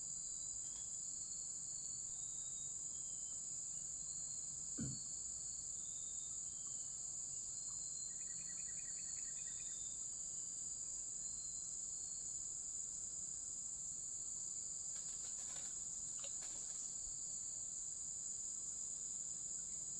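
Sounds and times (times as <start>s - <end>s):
night insects chorus: 0.0s - 19.9s
faint rustling: 14.9s - 17.0s.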